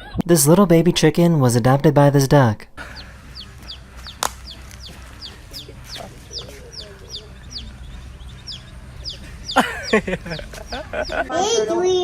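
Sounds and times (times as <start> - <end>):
baby chick peeping: 2.8 - 12.0
sharp click: 4.0 - 4.8.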